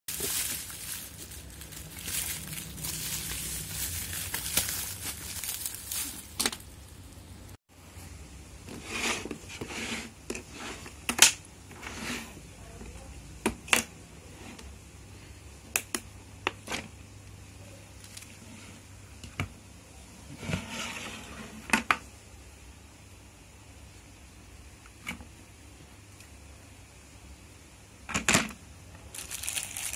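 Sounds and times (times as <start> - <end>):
packaging crinkling: 0.1 - 7.2, 29.1 - 29.9.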